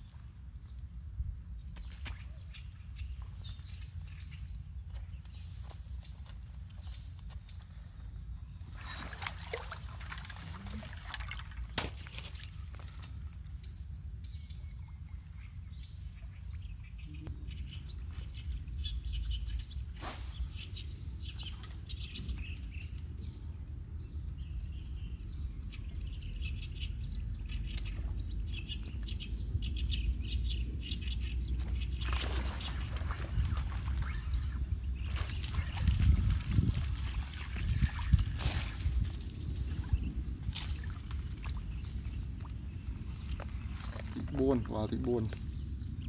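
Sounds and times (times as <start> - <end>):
birds chirping: 0.0 - 46.0
steady low rumble: 12.6 - 46.0.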